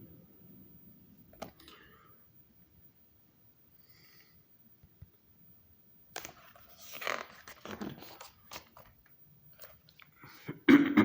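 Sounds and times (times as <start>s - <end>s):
book pages rustling: 6.1s - 10.1s.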